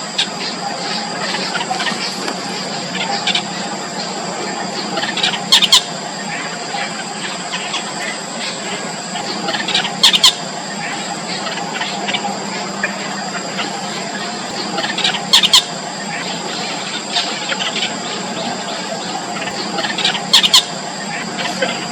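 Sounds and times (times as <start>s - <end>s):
chicks squealing: 0.0s - 21.9s
chicks squeaky begging calls: 0.1s - 21.9s.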